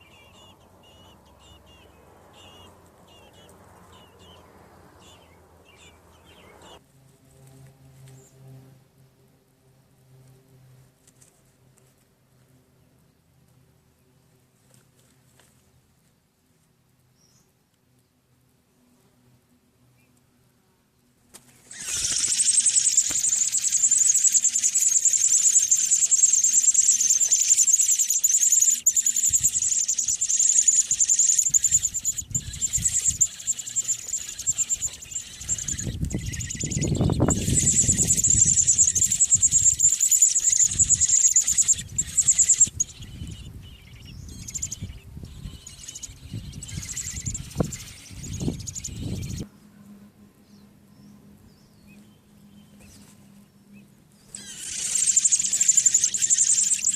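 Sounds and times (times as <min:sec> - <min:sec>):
nestlings begging with high peeps: 0:00.0 - 0:06.8, 0:21.6 - 0:49.4, 0:54.2 - 0:56.9.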